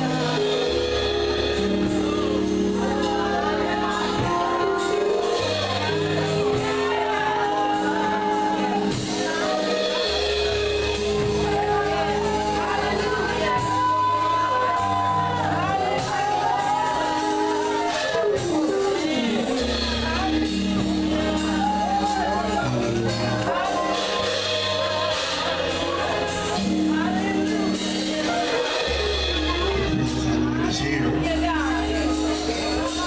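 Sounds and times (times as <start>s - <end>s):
congregation shouting: 0.0s - 18.4s, 20.1s - 27.8s
voices singing: 0.0s - 29.5s
gospel band playing: 0.0s - 33.0s.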